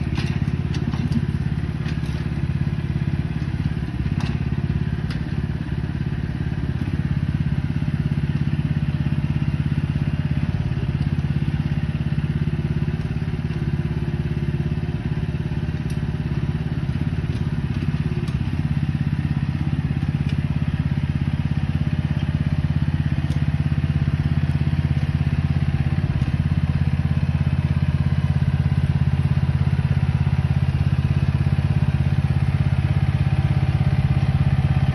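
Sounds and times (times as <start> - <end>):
excavator engine running: 0.0 - 34.9.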